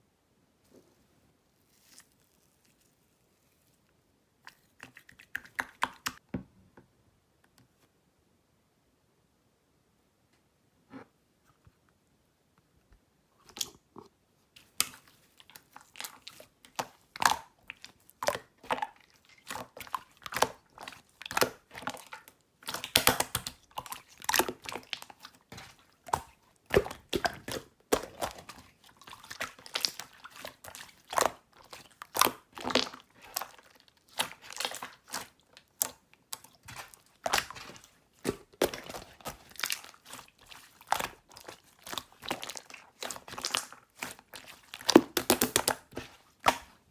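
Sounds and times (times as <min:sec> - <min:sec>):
slime squishing and popping: 0:14.7 - 0:46.8.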